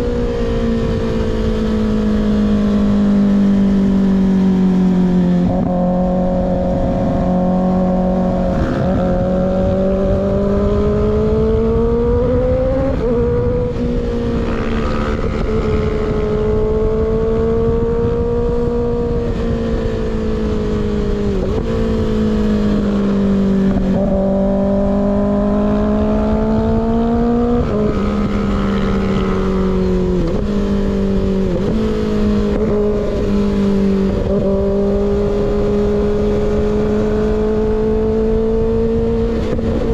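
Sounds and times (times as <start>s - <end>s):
wind rush: 0.0s - 39.9s.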